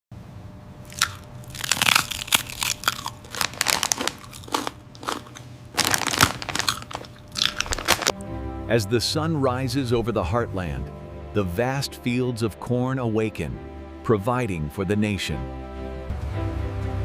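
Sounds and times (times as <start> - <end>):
crunchy snacks being chewed: 0.8 - 8.2.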